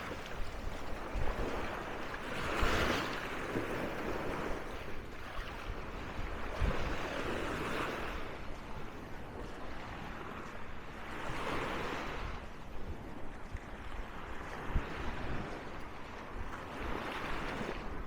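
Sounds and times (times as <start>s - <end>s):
wind gusting on microphone: 0.0s - 8.3s
sea waves washing onto beach: 0.0s - 18.0s.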